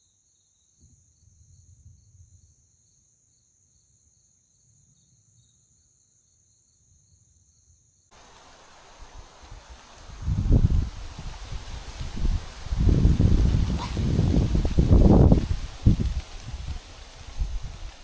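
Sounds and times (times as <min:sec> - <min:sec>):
crickets and insects trilling: 0:00.3 - 0:18.0
steady hiss: 0:08.1 - 0:18.0.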